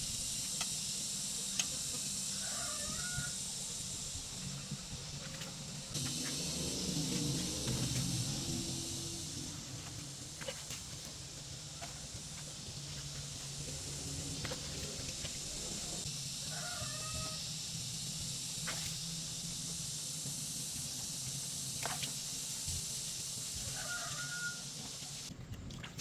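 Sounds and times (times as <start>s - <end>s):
low hum and hiss: 0.0s - 25.6s
chicken calling: 2.4s - 3.4s, 23.7s - 24.7s.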